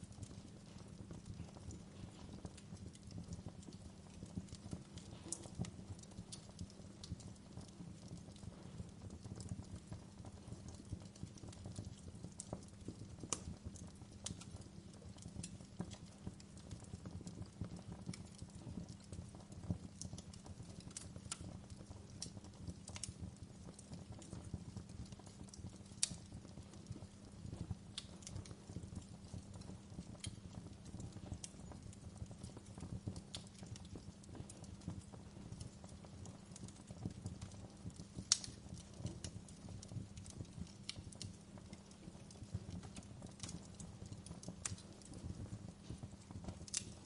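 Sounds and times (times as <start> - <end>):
wood fire crackling: 0.0 - 47.0.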